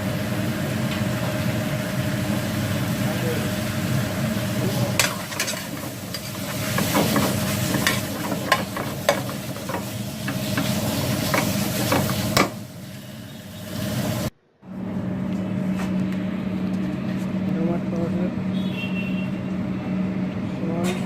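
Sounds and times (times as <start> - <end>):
spices sizzling in frying pan: 0.0 - 14.3
spoon clinking and scraping pan: 5.0 - 9.8.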